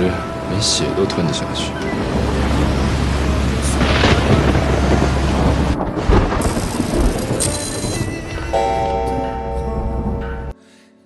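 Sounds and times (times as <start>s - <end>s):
heavy rain hissing: 1.5s - 8.0s
deep rumble of thunder: 2.0s - 8.5s.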